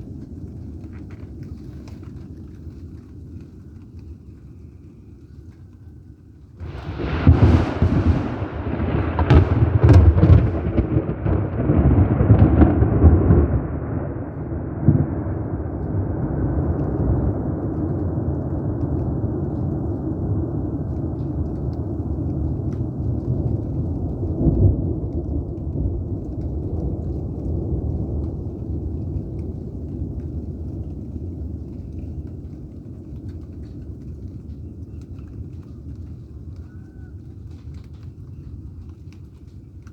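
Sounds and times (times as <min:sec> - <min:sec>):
thunder cracking: 0:06.5 - 0:34.6
thunder rumbling: 0:06.5 - 0:37.9.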